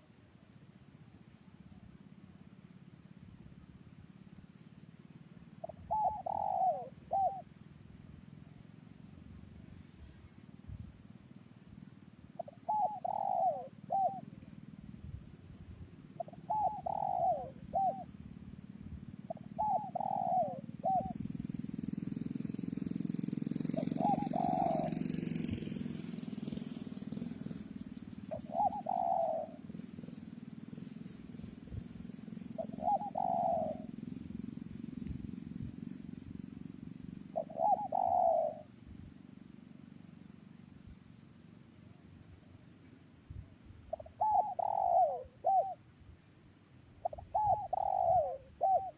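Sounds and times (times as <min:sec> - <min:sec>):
dove cooing: 0:05.6 - 0:07.6, 0:12.3 - 0:14.9, 0:15.8 - 0:41.1, 0:43.8 - 0:45.9, 0:47.0 - 0:48.9.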